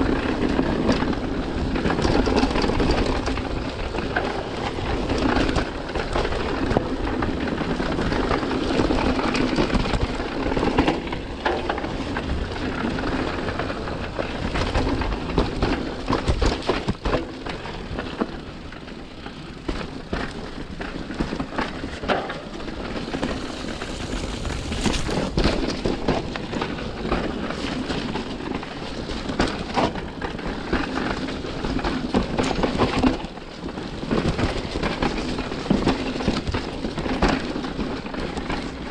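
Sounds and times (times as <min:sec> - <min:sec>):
bike rattling and knocking: 0:00.0 - 0:38.9
steady rushing noise: 0:19.5 - 0:28.4.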